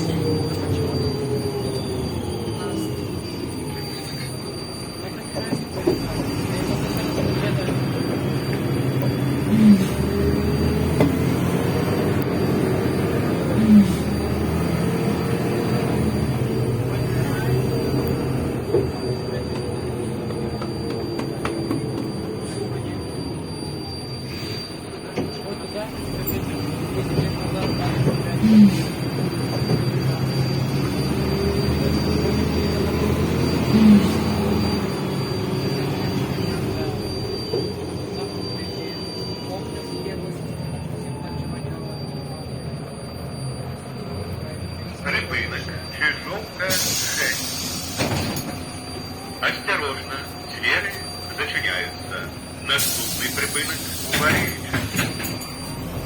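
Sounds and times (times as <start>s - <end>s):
bus engine and road rumble: 0.0s - 56.0s
falling squeal: 0.0s - 56.0s.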